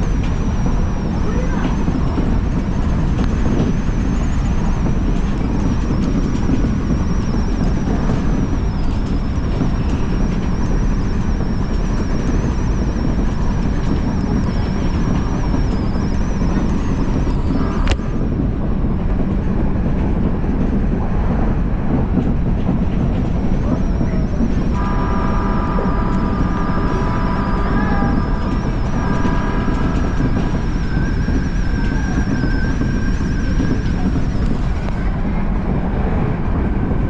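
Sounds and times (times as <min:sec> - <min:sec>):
electric train rumbling on track: 0:00.0 - 0:37.0
high whine: 0:21.0 - 0:37.0
steady high tones: 0:23.6 - 0:34.8.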